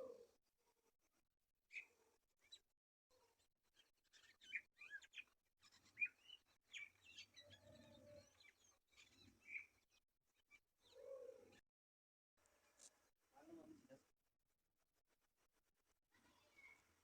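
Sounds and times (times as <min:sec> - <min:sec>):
small birds chirping: 0:01.7 - 0:11.6, 0:16.1 - 0:17.0.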